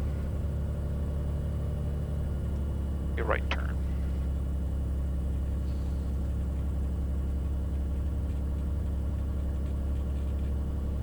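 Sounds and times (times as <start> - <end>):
propeller engine droning: 2.2 - 10.0.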